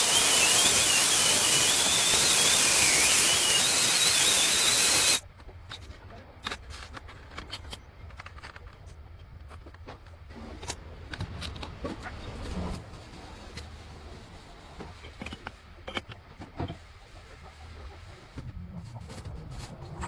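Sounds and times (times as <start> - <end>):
power tool whining: 0.0 - 5.2.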